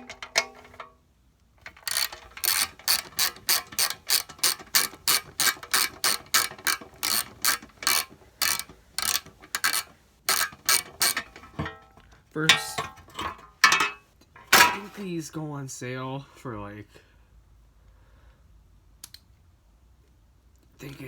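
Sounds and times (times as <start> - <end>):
ratchet wrench clicking: 1.7 - 11.7.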